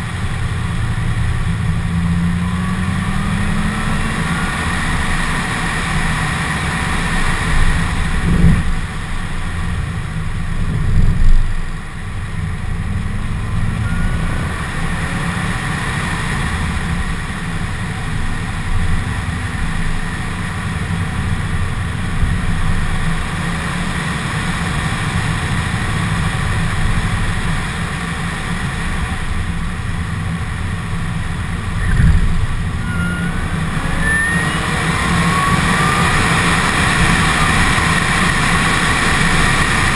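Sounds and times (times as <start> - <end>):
car engine drone: 0.0 - 39.9
low bumps: 7.7 - 15.0, 29.5 - 38.7
short rising whines: 12.9 - 15.7, 31.6 - 38.8.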